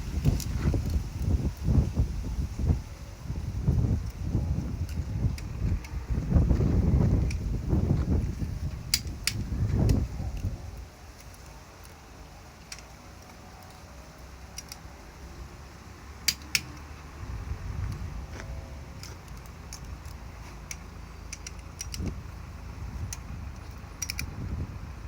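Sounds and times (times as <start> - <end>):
low rumble: 0.0 - 11.0, 15.0 - 25.0
tools and parts clinking: 8.4 - 15.0, 16.2 - 17.0, 17.8 - 22.3, 22.9 - 24.4.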